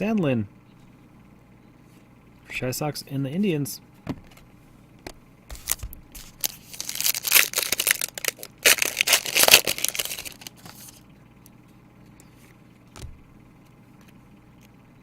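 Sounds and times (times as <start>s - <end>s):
wrapper tearing and crinkling: 5.6s - 11.0s.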